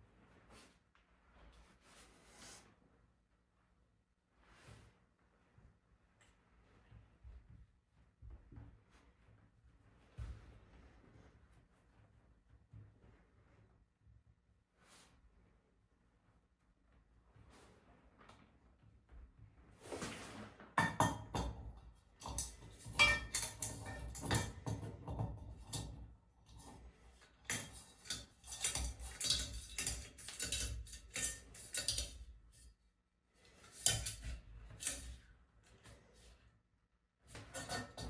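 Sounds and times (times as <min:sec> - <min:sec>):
metal objects clinking: 0:22.2 - 0:24.8, 0:27.5 - 0:32.3, 0:37.4 - 0:38.0.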